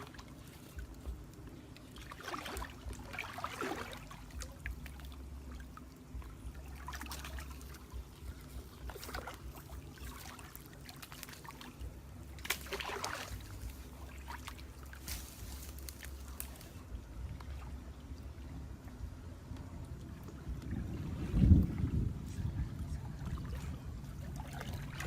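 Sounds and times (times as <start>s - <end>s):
water splashing and trickling: 0.0s - 25.0s
low rumble: 11.6s - 25.0s.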